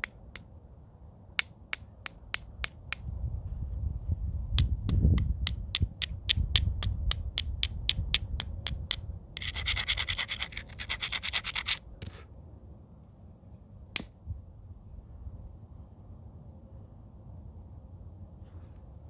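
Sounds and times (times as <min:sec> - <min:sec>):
sharp clicks on stone: 0:00.0 - 0:00.5, 0:01.4 - 0:03.1, 0:04.6 - 0:09.6, 0:14.0 - 0:14.3
rapid scraping on stone: 0:05.8 - 0:12.2.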